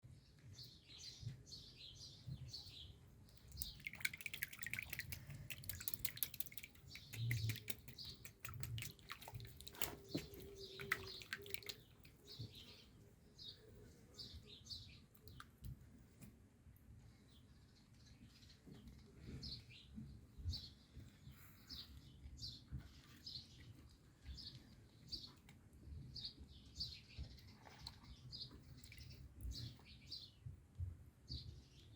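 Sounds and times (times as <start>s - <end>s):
sparrow chirping: 0.6s - 9.1s
water dripping: 3.3s - 12.5s.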